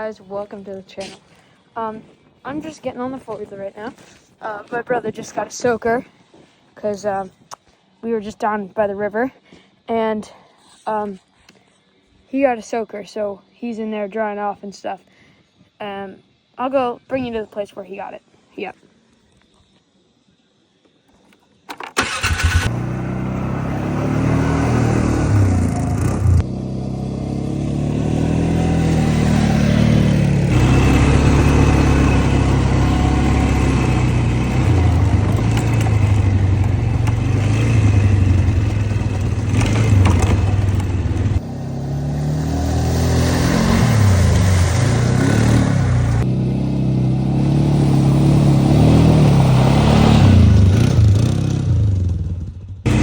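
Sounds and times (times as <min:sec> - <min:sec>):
atv engine revving: 0:22.0 - 0:53.0.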